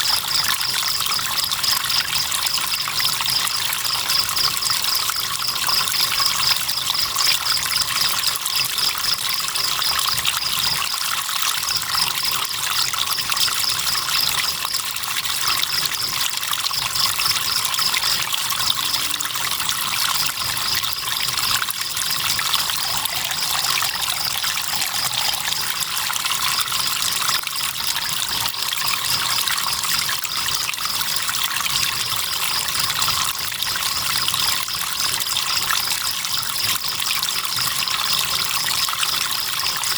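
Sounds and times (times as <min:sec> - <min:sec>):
crickets chirping: 0:15.6 - 0:31.0
flowing river water: 0:22.2 - 0:29.4.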